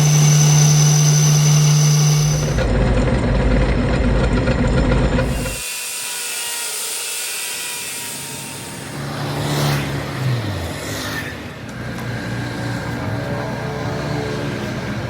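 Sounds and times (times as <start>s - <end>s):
vehicle engine running: 0.0s - 5.4s.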